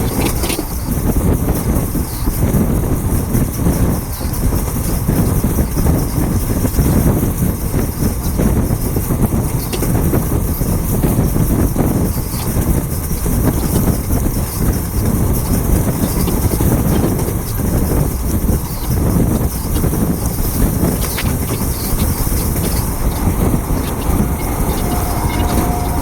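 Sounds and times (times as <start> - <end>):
train rumbling past: 7.3 - 26.0
hiss: 9.5 - 26.0.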